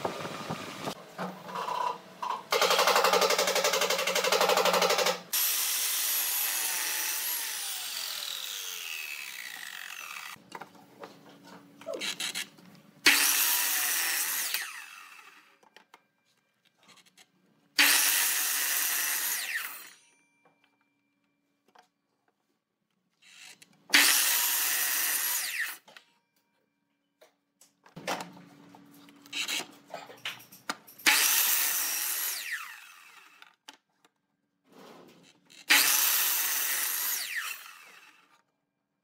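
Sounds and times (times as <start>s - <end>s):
power tool cutting wood: 2.6s - 10.4s, 13.0s - 15.6s, 17.8s - 20.0s, 23.9s - 25.9s, 31.0s - 33.4s, 35.5s - 38.4s.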